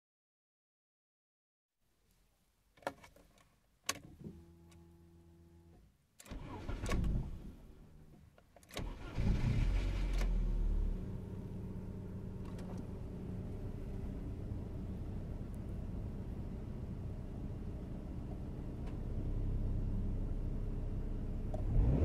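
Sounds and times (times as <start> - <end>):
car engine idling: 9.8 - 21.6.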